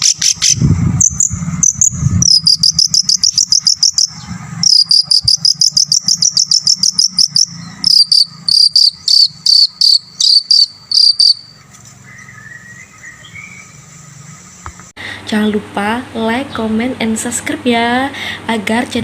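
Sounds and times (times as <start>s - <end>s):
bird singing rapid repeated notes: 0.0s - 14.7s.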